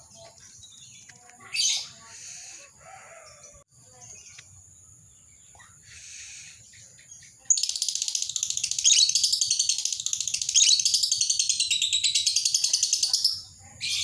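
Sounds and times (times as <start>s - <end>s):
quiet bird chirps: 0.0s - 14.0s
lovebird chattering trill: 5.5s - 14.0s.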